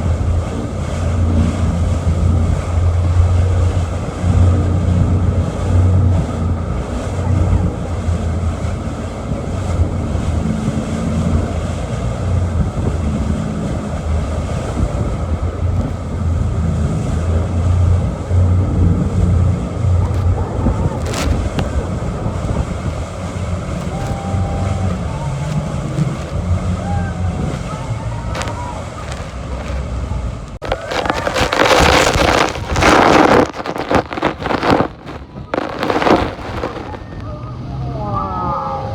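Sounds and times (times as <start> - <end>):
boat engine running: 0.0 - 38.9
churning water: 0.0 - 38.9
wind buffeting microphone: 0.0 - 38.9
wind rushing: 7.5 - 37.7.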